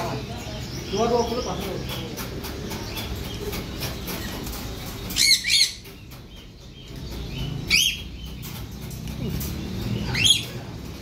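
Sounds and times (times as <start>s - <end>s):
bird warbling calls: 0.0s - 10.8s.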